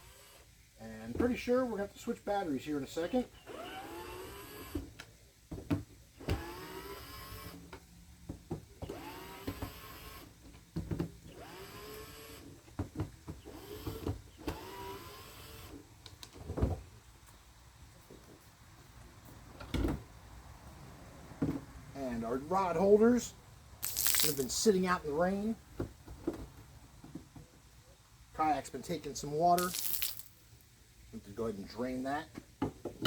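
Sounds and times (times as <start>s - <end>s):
cordless drill motor whine: 3.5s - 4.8s, 6.3s - 7.6s, 8.9s - 10.3s, 11.4s - 12.5s, 13.5s - 15.7s.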